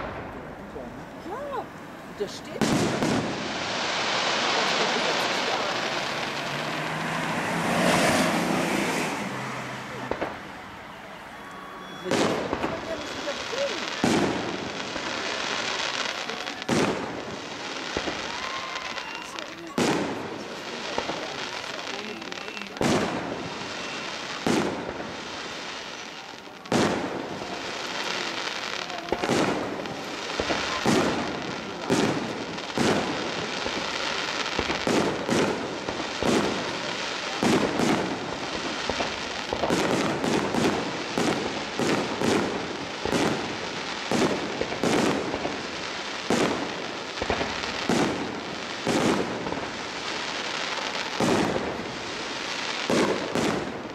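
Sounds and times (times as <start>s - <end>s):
steady hiss: 0.0s - 7.6s.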